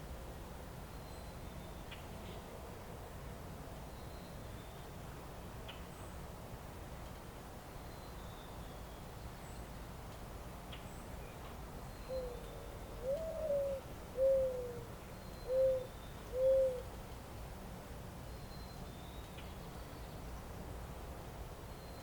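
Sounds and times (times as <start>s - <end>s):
outdoor ambience hiss: 0.0s - 22.0s
dove cooing: 13.0s - 14.9s, 15.5s - 16.9s.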